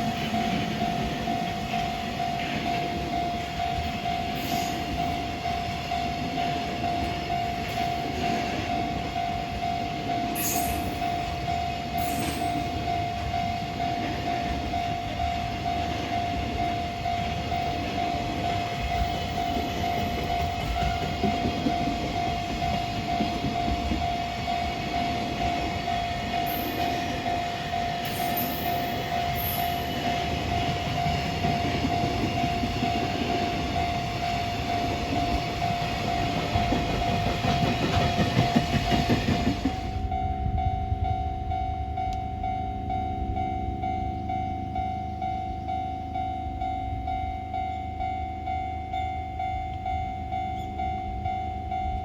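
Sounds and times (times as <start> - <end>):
steady high tone: 0.0 - 38.1
freight train rumbling over rails: 0.0 - 52.0.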